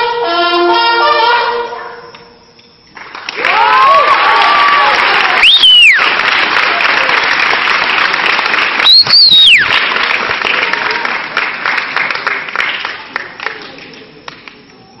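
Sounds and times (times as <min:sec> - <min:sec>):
crowd applauding and cheering: 0:02.9 - 0:15.0
loud shrill whistle: 0:05.4 - 0:06.1, 0:08.8 - 0:09.8.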